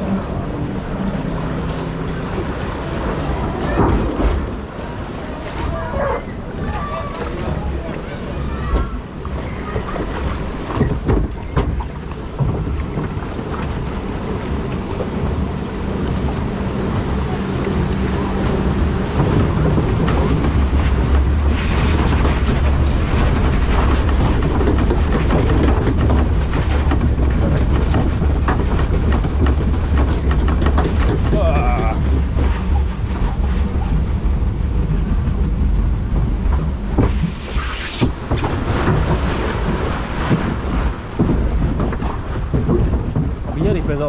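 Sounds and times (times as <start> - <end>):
mechanical hum and rumble: 0.0 - 44.0.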